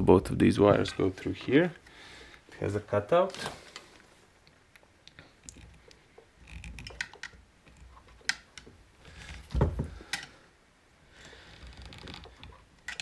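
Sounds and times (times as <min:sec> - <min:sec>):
dull thump: 0:09.5 - 0:10.0.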